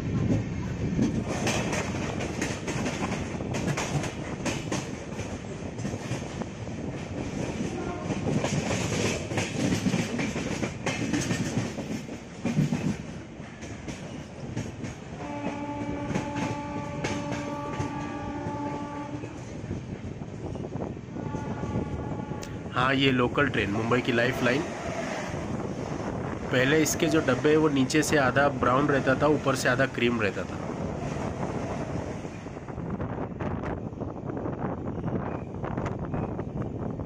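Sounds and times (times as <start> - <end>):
train rushing noise: 0.0 - 37.0
train wheels clattering on rails: 0.2 - 22.7
train horn long note: 7.8 - 8.2, 15.2 - 19.4, 21.2 - 22.6.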